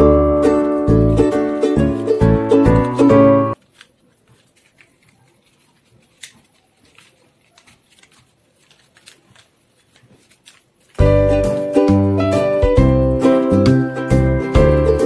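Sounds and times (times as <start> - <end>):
background music: 0.0 - 3.6, 11.0 - 15.0
paper rustling and crinkling: 0.5 - 11.8.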